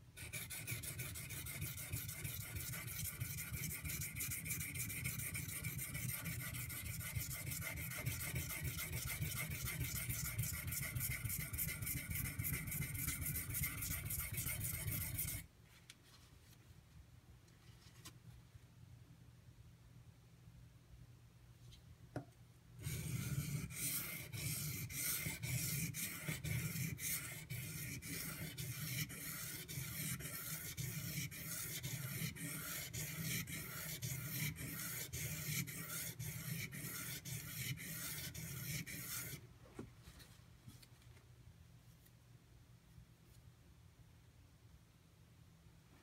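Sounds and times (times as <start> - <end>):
knife scraping on whetstone: 22.8 - 39.4.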